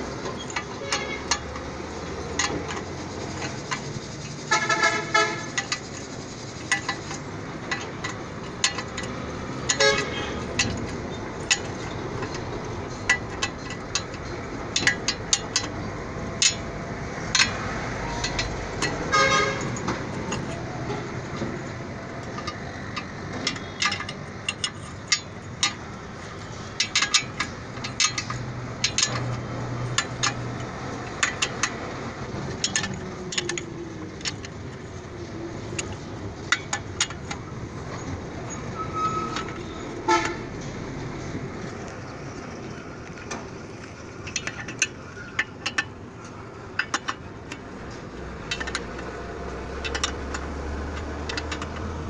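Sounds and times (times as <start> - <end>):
street traffic hum: 0.0 - 52.0
hand tools clinking on metal: 0.1 - 41.9, 42.5 - 52.0
car horn toot: 4.5 - 5.6, 9.7 - 10.4, 19.1 - 19.7, 38.8 - 40.4.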